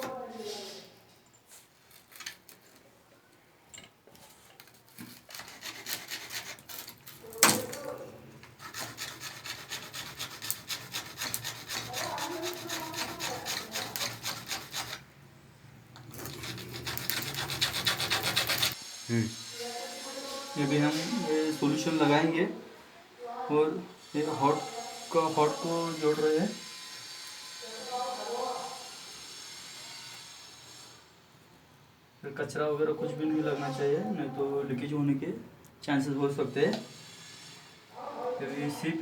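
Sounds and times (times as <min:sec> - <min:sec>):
hand tool rasping pipe: 0:05.0 - 0:07.2, 0:08.5 - 0:15.0, 0:16.1 - 0:18.8.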